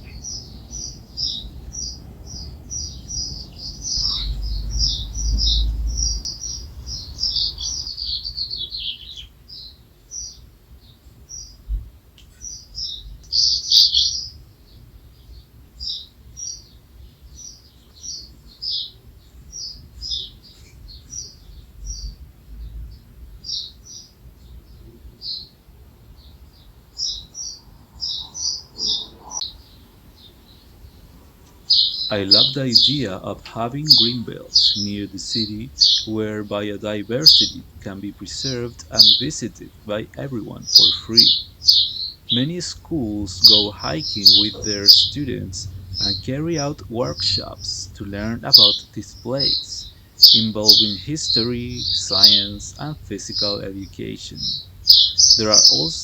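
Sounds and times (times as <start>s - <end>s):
low rumble: 0.0s - 7.9s, 42.4s - 48.5s
songbirds chirping: 0.0s - 56.0s.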